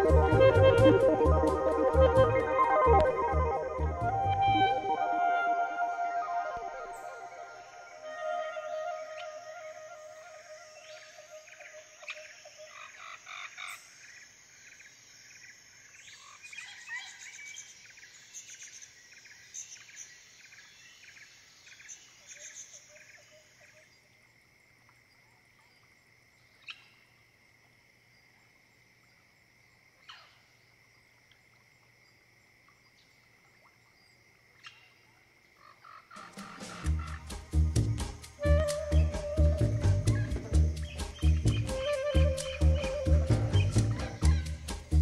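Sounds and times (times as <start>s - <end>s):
insects chirping: 0.0s - 45.0s
high insect trill: 4.7s - 24.0s, 35.5s - 45.0s
animal calls: 35.6s - 45.0s.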